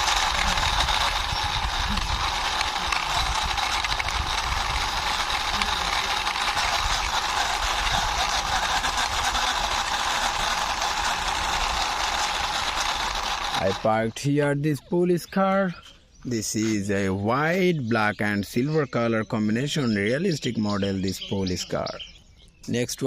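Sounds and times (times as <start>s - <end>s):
toy car wheels whirring: 0.0s - 14.2s.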